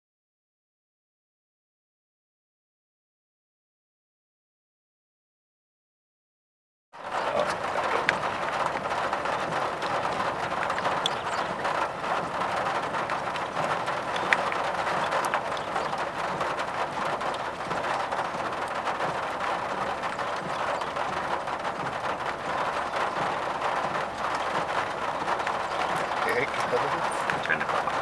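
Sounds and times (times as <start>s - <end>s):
rain pattering on car roof: 7.0s - 28.0s
road noise: 7.0s - 28.0s.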